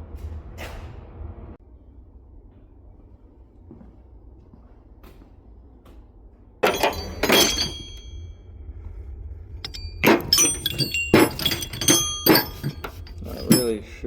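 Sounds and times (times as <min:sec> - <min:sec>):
metal hand tools clattering: 0:06.6 - 0:08.2, 0:09.6 - 0:14.0
sharp metallic clanks: 0:06.6 - 0:08.3, 0:09.6 - 0:14.0.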